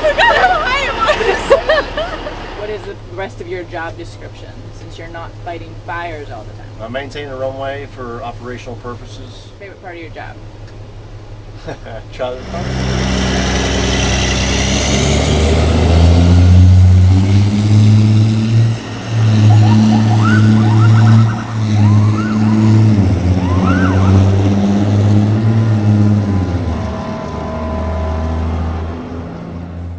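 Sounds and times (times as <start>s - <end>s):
fire truck engine revving: 0.0s - 9.6s, 10.2s - 29.9s
siren whoops: 19.1s - 24.6s, 25.4s - 29.2s.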